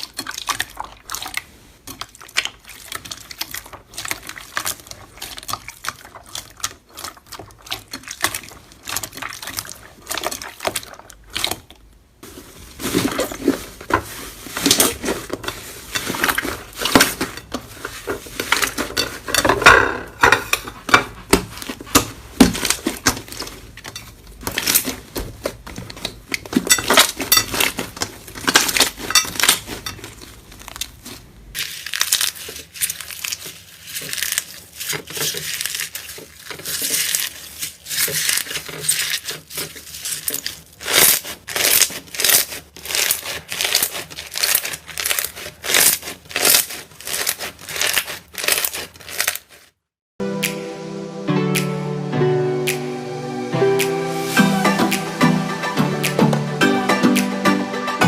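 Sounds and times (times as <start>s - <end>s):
slime squeezed and kneaded: 24.4s - 49.7s.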